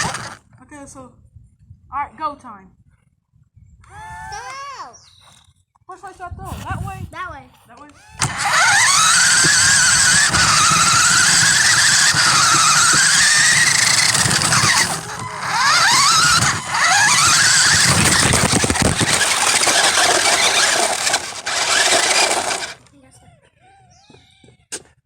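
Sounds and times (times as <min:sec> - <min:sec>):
toy electric motor whining: 0:00.0 - 0:00.4, 0:08.0 - 0:22.9.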